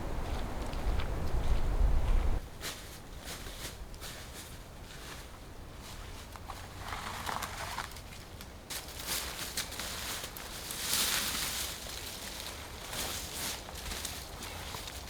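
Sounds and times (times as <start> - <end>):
steady low rumble: 0.0 - 2.4
crunching and rustling: 0.0 - 15.0.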